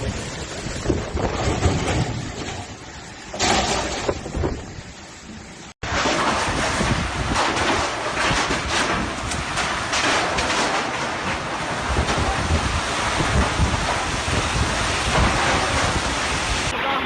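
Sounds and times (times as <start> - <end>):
heavy rain: 0.0 - 17.0
low thunder rumble: 0.0 - 17.0
wind buffeting microphone: 0.0 - 17.0.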